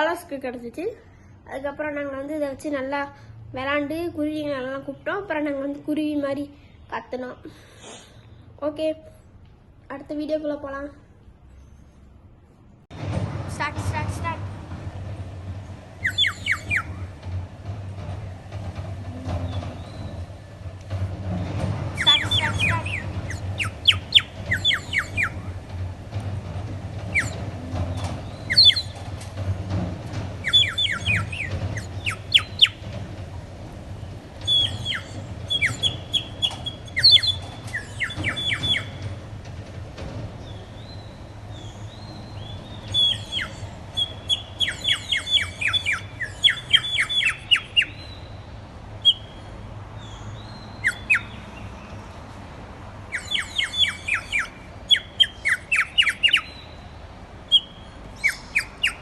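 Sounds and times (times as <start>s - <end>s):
steady low hum: 11.2s - 59.0s
bird whistle warbling chirps: 16.0s - 17.0s, 22.0s - 25.4s, 27.1s - 27.4s, 28.4s - 29.0s, 30.4s - 32.8s, 34.4s - 39.0s, 42.9s - 48.2s, 53.1s - 56.6s.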